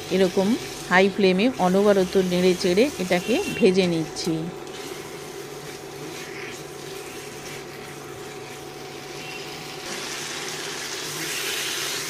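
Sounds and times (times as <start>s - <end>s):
food sizzling in a hot pan: 5.2s - 12.0s.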